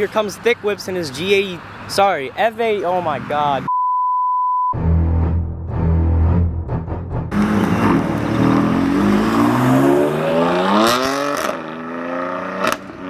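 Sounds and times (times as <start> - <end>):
car engine accelerating hard: 7.3 - 13.0.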